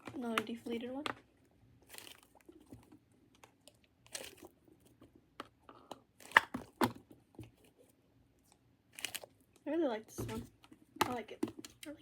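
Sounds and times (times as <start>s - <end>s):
squishy toys crackling: 8.9s - 9.7s.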